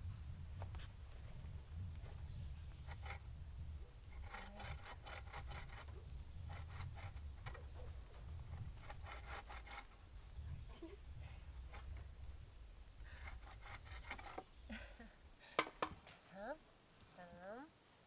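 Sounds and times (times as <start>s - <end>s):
hand saw cutting wood: 2.8s - 3.3s, 4.0s - 7.8s, 8.4s - 10.0s, 11.6s - 12.1s, 13.2s - 14.5s.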